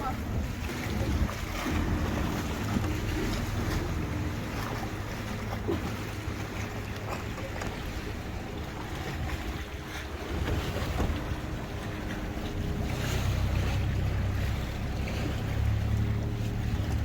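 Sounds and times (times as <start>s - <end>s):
boat engine humming: 0.0s - 17.0s
water washing against hull: 0.0s - 17.0s
wind buffeting microphone: 0.0s - 17.0s.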